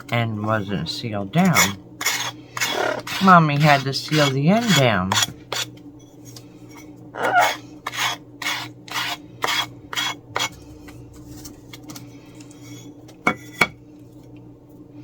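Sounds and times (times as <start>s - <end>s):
faint steady hum: 0.0s - 15.0s
sanding block rasping: 1.6s - 5.7s, 7.4s - 10.5s.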